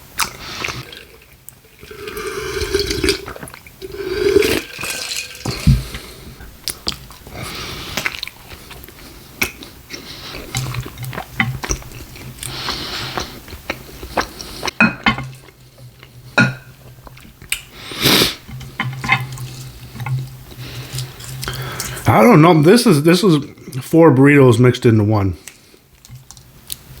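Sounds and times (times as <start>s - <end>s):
wet chewing mouth sounds: 5.4s - 22.0s.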